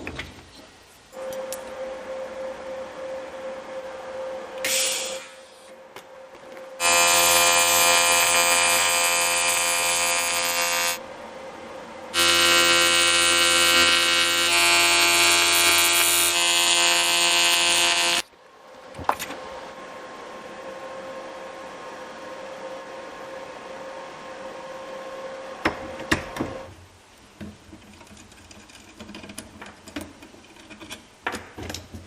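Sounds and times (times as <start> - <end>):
small electric motor running: 6.8 - 11.0, 12.1 - 18.2.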